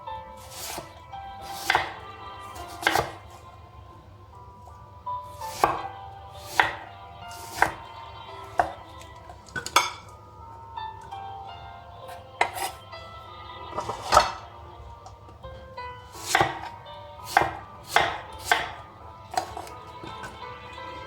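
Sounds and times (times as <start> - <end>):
faint background music: 0.0 - 21.0
knife chopping on cutting board: 0.4 - 3.4, 5.2 - 10.1, 12.1 - 12.8, 13.8 - 14.4, 16.1 - 20.4.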